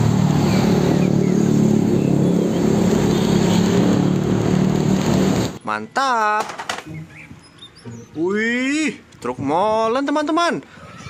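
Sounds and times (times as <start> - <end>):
cars passing: 0.0 - 5.6
heavy vehicle engine running: 0.0 - 5.6
motorcycle passing: 0.0 - 5.6.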